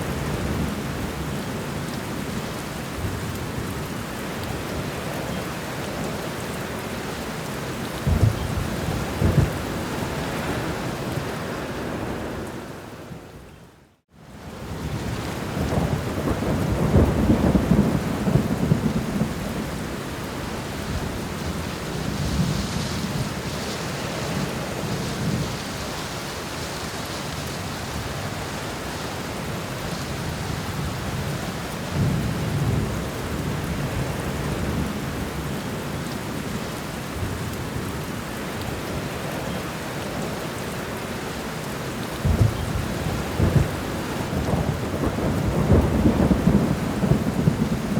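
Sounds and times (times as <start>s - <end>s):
heavy rain: 0.0s - 47.9s
rolling thunder: 8.0s - 10.8s, 14.9s - 19.8s, 42.2s - 47.9s.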